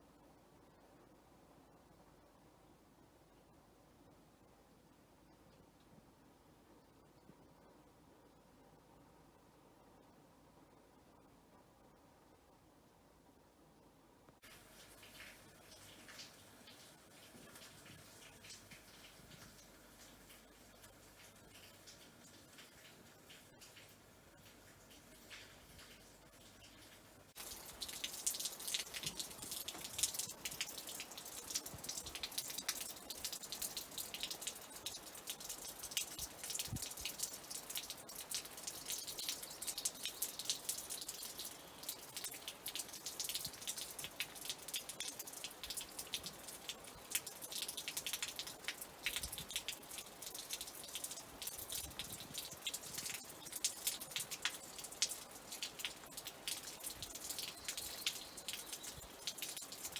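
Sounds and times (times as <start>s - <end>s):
rain drops tapping on a surface: 14.3s - 59.9s.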